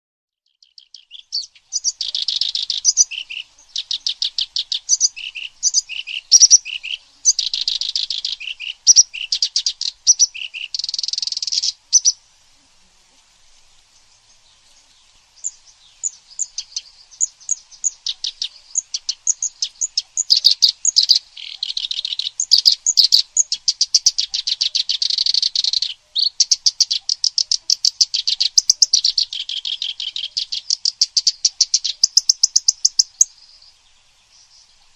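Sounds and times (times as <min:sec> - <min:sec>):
songbird chips and trills: 0:00.5 - 0:12.3, 0:13.4 - 0:34.9.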